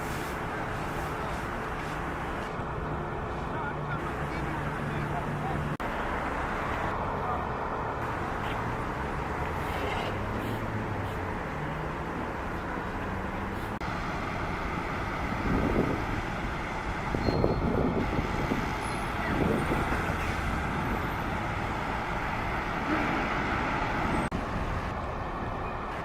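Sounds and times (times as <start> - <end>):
road traffic: 0.0 - 26.0.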